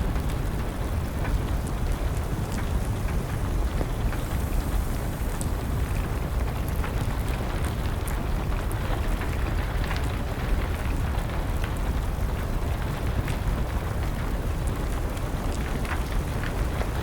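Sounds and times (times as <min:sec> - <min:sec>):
rain rushing: 0:00.0 - 0:17.0
wood fire crackling and popping: 0:00.0 - 0:17.0.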